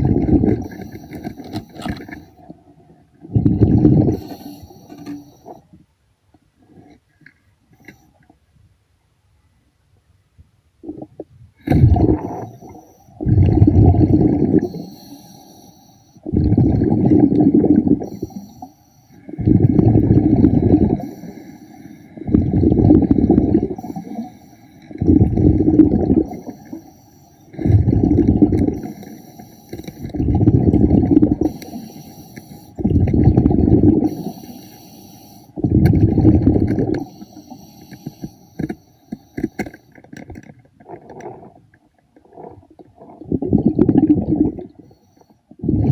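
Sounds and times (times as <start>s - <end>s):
diver's breath bubbling underwater: 0.0s - 1.2s, 3.3s - 4.7s, 10.9s - 15.1s, 16.2s - 18.5s, 19.2s - 21.4s, 22.2s - 24.3s, 24.9s - 26.8s, 27.5s - 29.1s, 30.0s - 32.1s, 32.8s - 34.6s, 35.6s - 37.1s, 42.3s - 44.8s, 45.6s - 45.9s.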